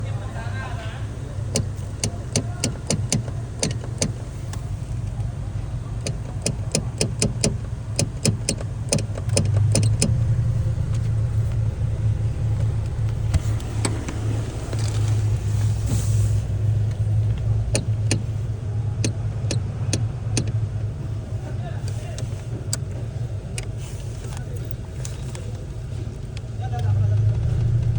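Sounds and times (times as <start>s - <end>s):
car engine idling: 0.0s - 27.9s
sharp rattling clicks: 1.0s - 27.9s.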